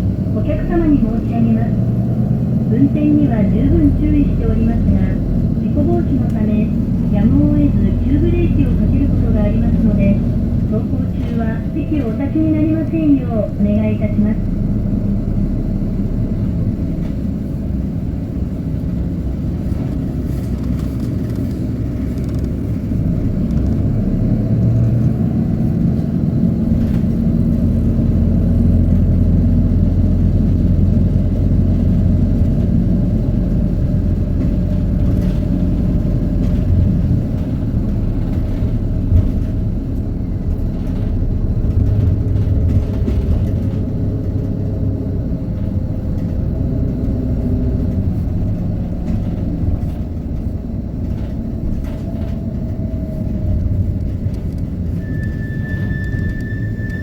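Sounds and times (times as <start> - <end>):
bus engine drone: 0.0 - 57.0
body rattles: 31.4 - 55.0.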